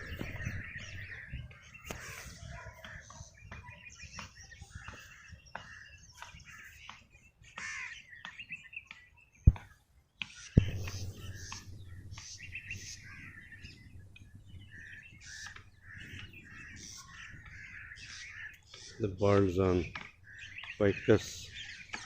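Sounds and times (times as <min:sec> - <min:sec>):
birds chirping: 0:00.0 - 0:22.0
sharp thump: 0:09.5 - 0:09.7, 0:10.6 - 0:15.7.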